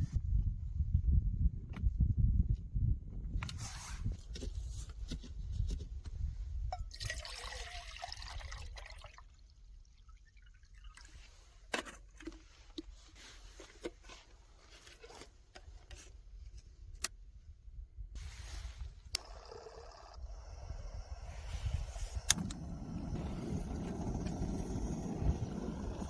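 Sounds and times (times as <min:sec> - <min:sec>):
low wind rumble: 0:00.0 - 0:08.5, 0:20.1 - 0:26.0
water pouring into tank: 0:06.9 - 0:11.2.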